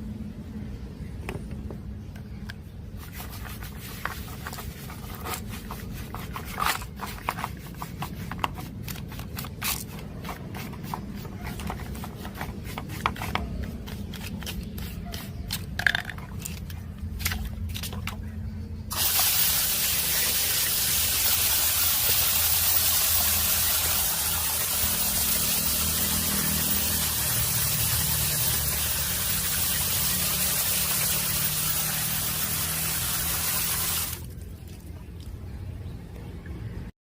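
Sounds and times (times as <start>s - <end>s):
small clicks and scrapes: 2.4s - 18.4s.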